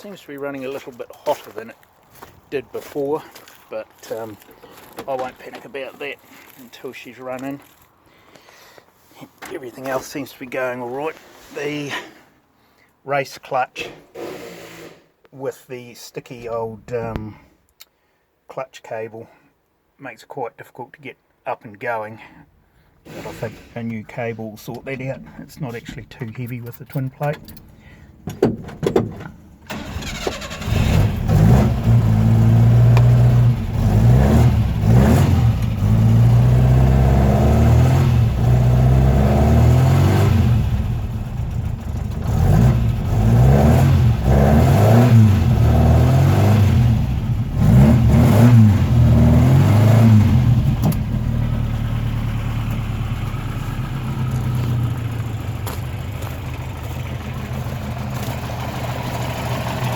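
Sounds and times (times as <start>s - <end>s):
car engine starting and revving: 29.7s - 59.9s.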